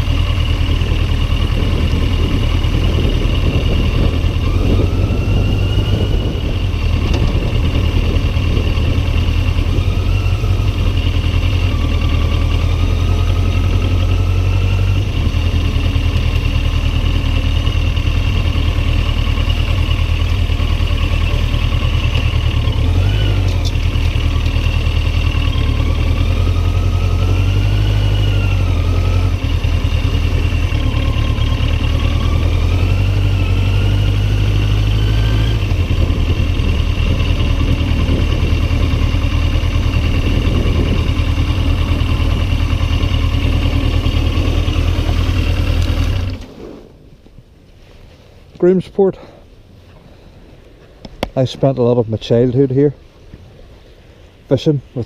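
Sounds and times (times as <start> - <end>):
motorcycle engine: 0.0 - 47.4
wind buffeting camera: 0.6 - 12.8, 34.6 - 47.6.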